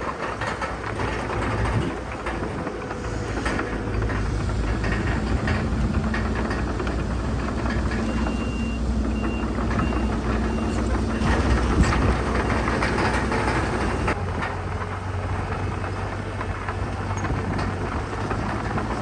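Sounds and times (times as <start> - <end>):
metal clanks: 0.0 - 14.6
heavy diesel machinery rumbling: 0.0 - 19.0
reversing alarm beeping: 7.6 - 14.2.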